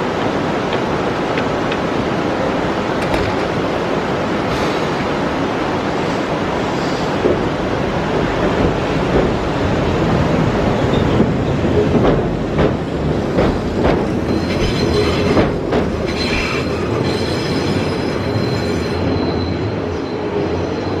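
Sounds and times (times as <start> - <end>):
high wheel squeal: 14.1 - 15.4, 16.1 - 20.1.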